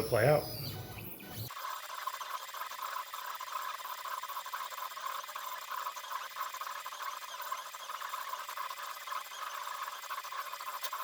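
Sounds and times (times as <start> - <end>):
stepper motors whining: 0.0 - 1.5.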